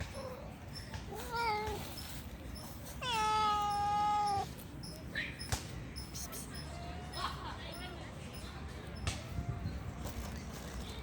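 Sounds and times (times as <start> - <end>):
cat meowing: 3.0 - 4.5.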